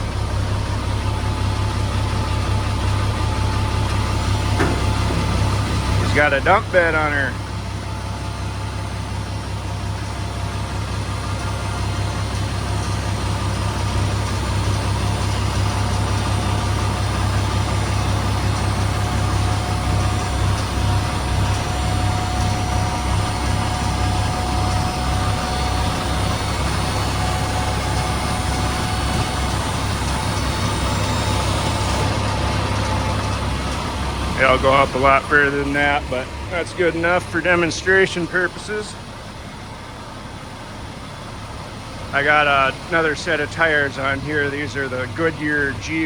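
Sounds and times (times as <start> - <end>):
diesel engine running: 0.0 - 46.0
thin steady whine: 19.0 - 46.0.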